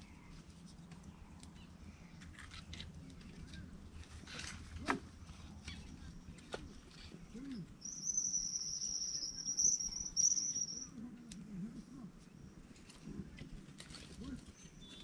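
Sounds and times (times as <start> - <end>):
insect trilling: 7.8 - 10.9.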